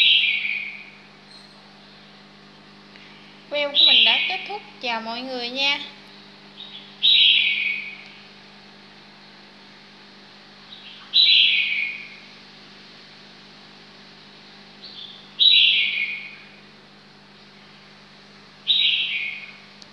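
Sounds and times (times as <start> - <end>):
bird calling: 0.0 - 1.7, 3.5 - 4.6, 6.5 - 8.3, 10.7 - 12.3, 14.8 - 16.6, 18.6 - 19.7.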